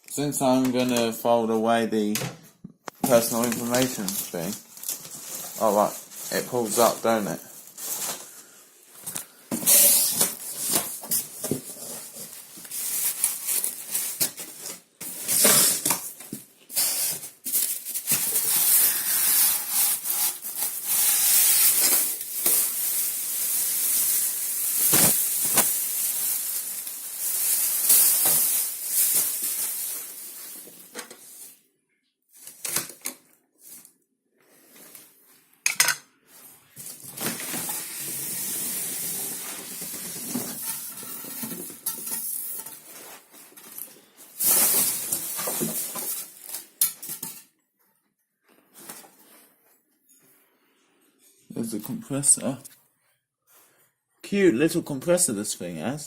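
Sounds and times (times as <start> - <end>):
packaging rustling and scraping: 3.1 - 31.6, 36.3 - 47.4, 48.6 - 49.8.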